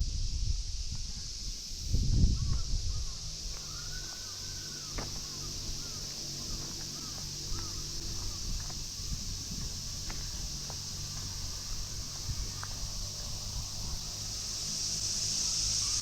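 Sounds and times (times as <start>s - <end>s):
birds calling: 2.4s - 16.0s
steady high-pitched drone: 2.7s - 16.0s.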